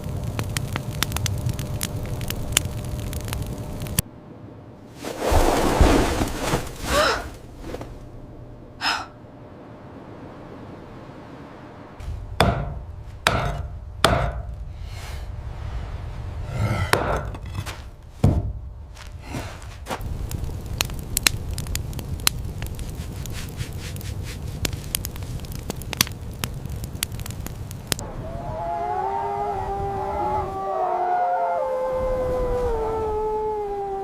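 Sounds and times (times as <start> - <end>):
sharp crackles: 0.0 - 4.0, 5.0 - 8.1, 18.9 - 28.0
steady low rumble: 0.0 - 28.6
wood being chopped: 12.4 - 14.4.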